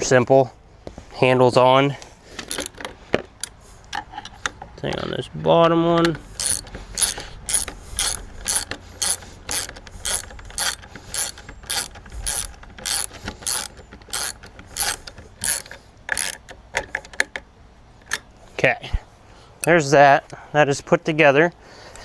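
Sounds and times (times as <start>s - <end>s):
ratchet clicking: 2.4s - 2.8s, 6.1s - 16.6s.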